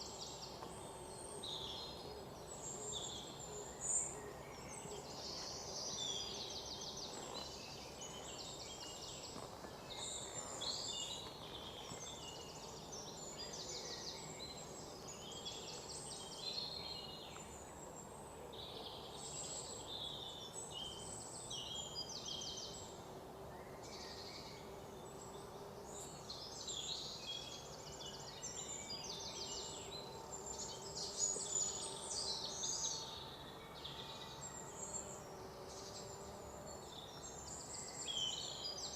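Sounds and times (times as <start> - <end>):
low background hiss: 0.0 - 38.9.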